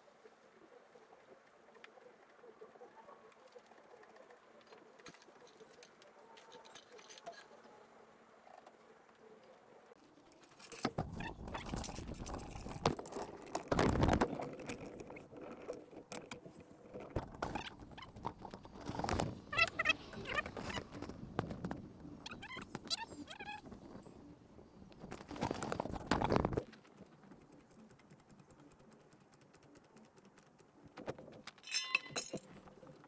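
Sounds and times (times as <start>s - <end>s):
metal tools clinking and clattering: 5.1s - 7.7s, 31.5s - 32.9s.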